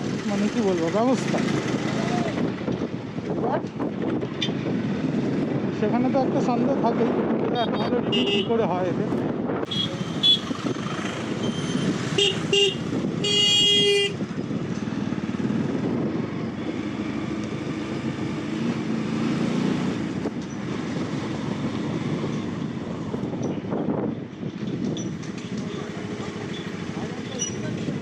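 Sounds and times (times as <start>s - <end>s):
traffic and engine noise: 0.0s - 28.0s
vehicle horns honking: 7.6s - 8.6s, 9.7s - 10.5s, 11.4s - 14.2s.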